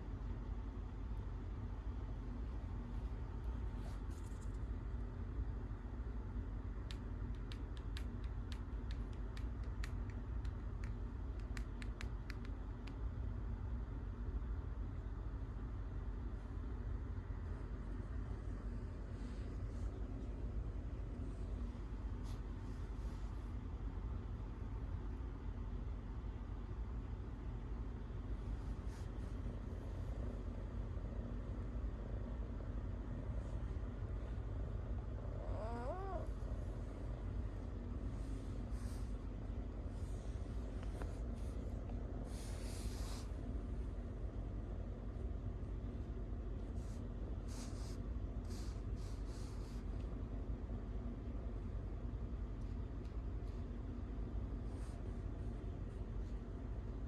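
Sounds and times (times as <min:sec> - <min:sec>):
low background rumble: 0:00.0 - 0:57.0
steady low hum: 0:00.0 - 0:57.0
cat meowing: 0:35.4 - 0:36.3.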